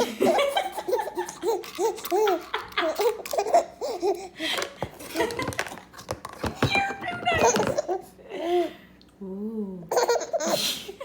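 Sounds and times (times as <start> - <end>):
baby laughing and babbling: 0.8 - 4.4, 9.9 - 10.6.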